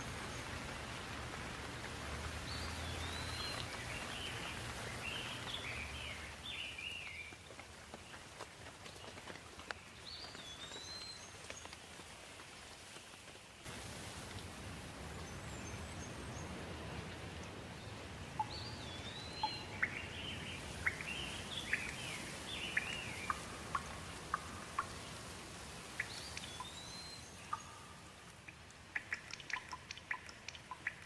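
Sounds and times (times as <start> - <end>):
steady rain: 0.0 - 31.0
birds chirping and whistling: 26.0 - 27.6
sharp ticks: 28.4 - 31.0.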